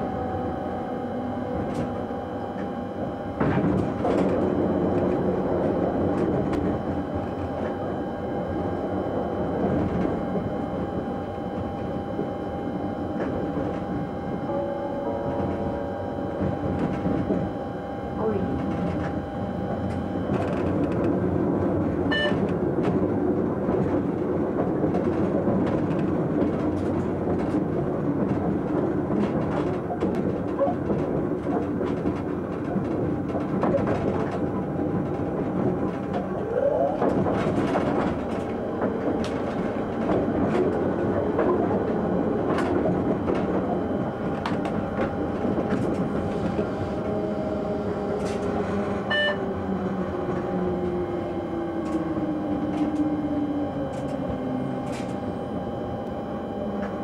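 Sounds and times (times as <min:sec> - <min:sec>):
tone sinking in pitch: 0:00.0 - 0:21.2
train running gear rumble: 0:00.0 - 0:57.0.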